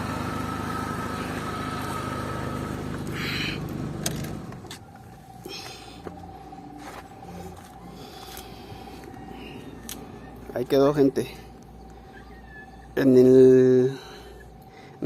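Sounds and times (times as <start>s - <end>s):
car engine idling: 0.0s - 12.1s
faint steady tone: 4.7s - 15.0s.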